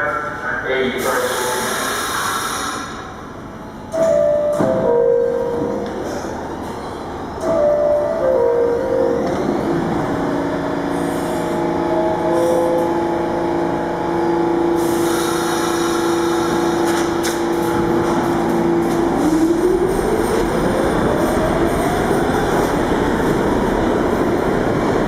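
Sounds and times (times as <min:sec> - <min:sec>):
air hiss: 0:01.0 - 0:03.0, 0:14.8 - 0:16.6.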